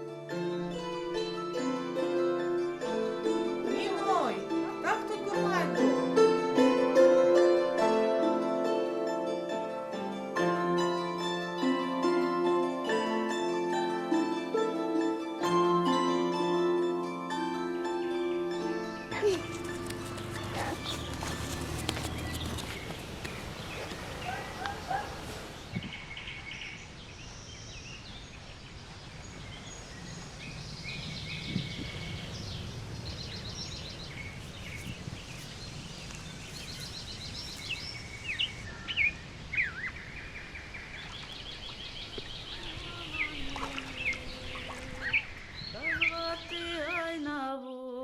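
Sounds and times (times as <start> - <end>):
small birds chirping: 19.1 - 47.4.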